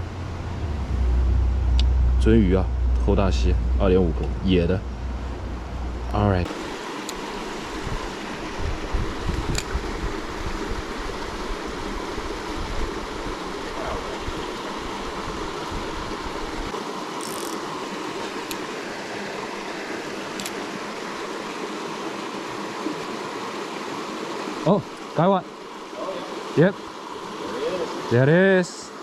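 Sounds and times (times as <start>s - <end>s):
low rumble: 0.0s - 6.5s
creek water running over rocks: 6.4s - 29.0s.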